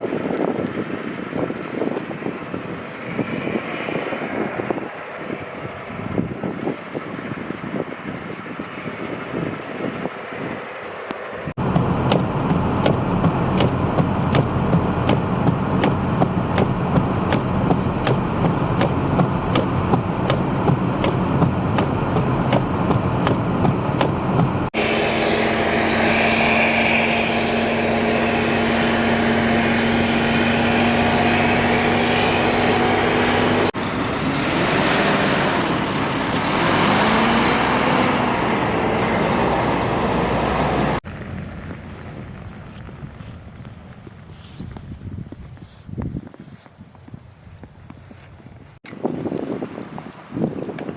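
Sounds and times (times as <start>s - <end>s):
engine drone: 11.0s - 44.1s
regular ticking: 11.6s - 24.7s
engine revving: 11.6s - 41.7s
heavy engine idling: 11.6s - 42.6s.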